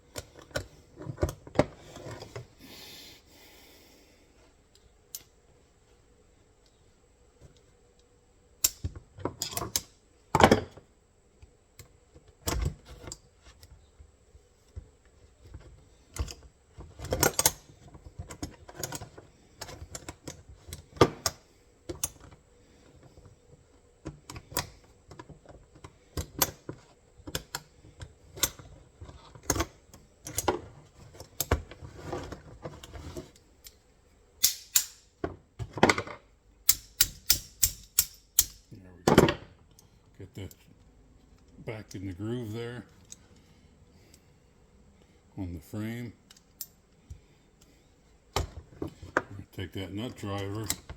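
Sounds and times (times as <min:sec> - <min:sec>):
metal trap parts clicking and clanking: 0:34.4 - 0:35.1, 0:36.7 - 0:38.7.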